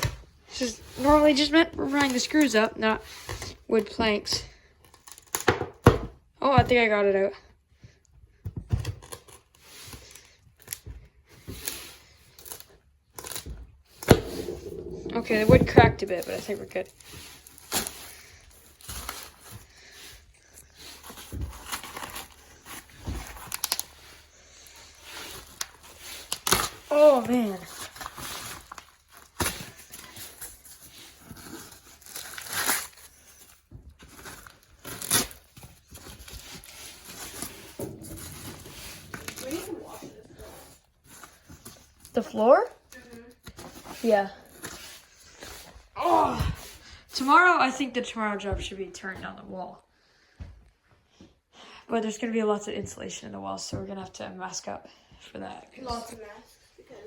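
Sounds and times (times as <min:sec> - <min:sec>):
flooring debris rustling and scraping: 0:00.0 - 0:51.4
wood plank scraping: 0:14.0 - 0:16.7.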